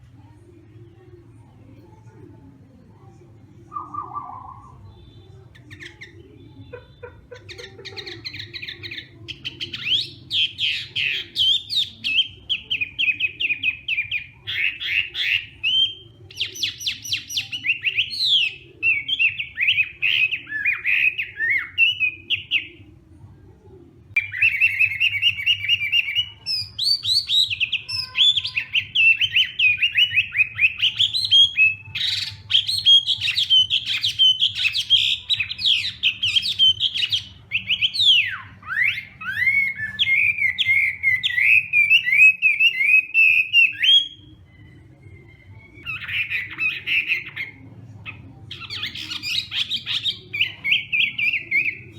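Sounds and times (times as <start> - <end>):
bird singing whistled phrases: 3.7 - 6.2, 24.2 - 47.5.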